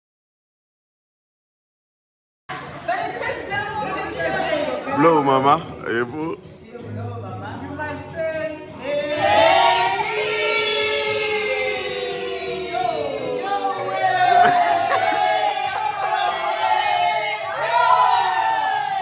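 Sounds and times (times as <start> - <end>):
group of people singing: 8.8 - 19.0.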